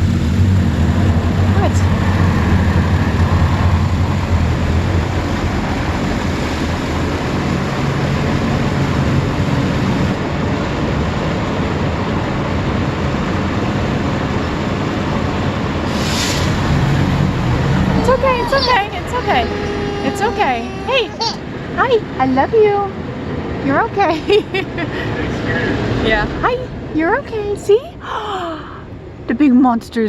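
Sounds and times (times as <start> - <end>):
car wash machinery: 0.0 - 26.2
sharp hiss: 15.9 - 17.1.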